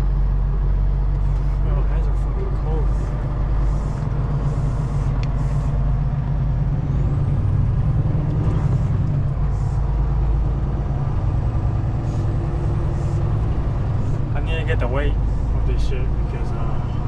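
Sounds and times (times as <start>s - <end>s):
truck diesel engine rumbling: 0.0s - 17.0s.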